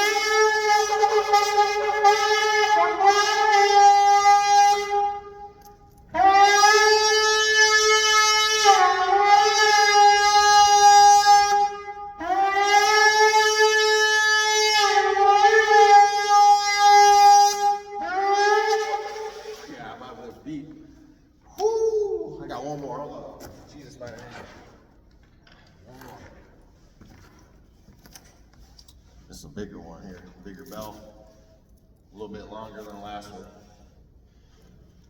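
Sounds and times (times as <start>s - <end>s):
horn blasts: 0.0s - 20.4s.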